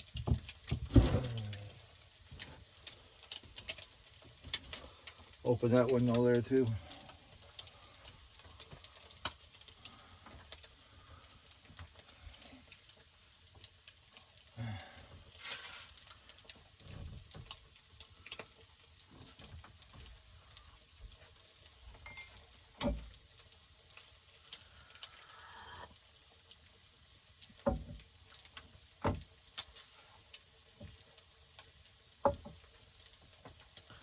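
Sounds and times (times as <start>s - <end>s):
food sizzling in a pan: 6.5s - 17.0s, 17.6s - 34.0s.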